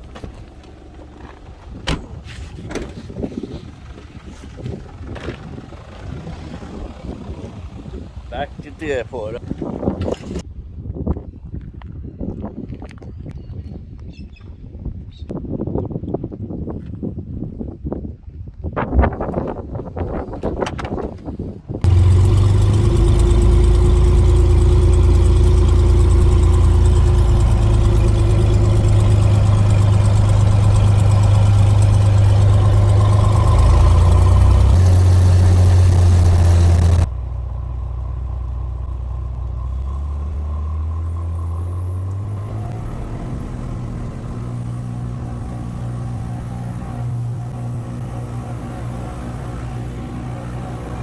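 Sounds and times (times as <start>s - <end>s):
loud engine drone: 21.8s - 51.0s.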